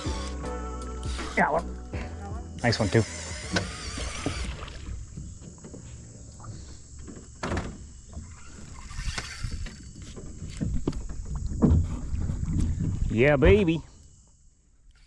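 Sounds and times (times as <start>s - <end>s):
water and boat noises: 1.1s - 15.0s
water splashes: 4.0s - 6.8s
wind rumble on microphone: 8.6s - 13.8s.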